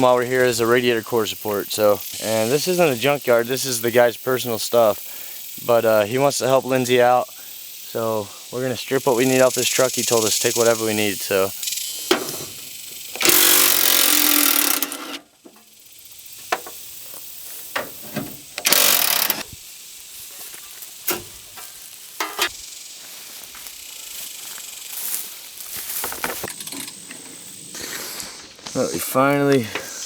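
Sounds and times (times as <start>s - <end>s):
power tool bursts: 11.6s - 15.3s, 18.2s - 19.5s.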